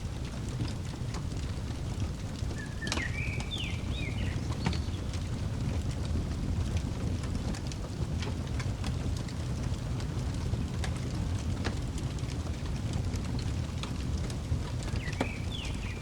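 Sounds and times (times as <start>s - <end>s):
low fire rumble: 0.0s - 16.0s
wood fire crackling: 0.0s - 16.0s
bird chirping: 2.5s - 5.2s, 14.8s - 16.0s.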